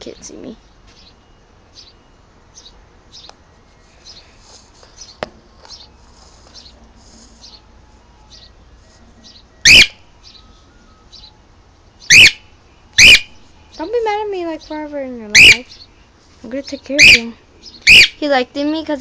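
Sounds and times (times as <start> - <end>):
cockatiel chirping: 9.2 - 10.4, 12.0 - 13.4, 15.3 - 15.9, 17.0 - 18.2
cockatiel shrill call: 9.6 - 11.3, 12.0 - 13.4, 15.3 - 15.8, 17.0 - 18.2.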